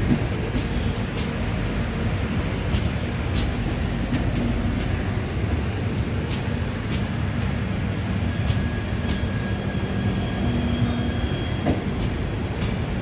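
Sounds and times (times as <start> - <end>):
train wheels rumbling on track: 0.0 - 13.0
faint high squeal: 8.2 - 11.7.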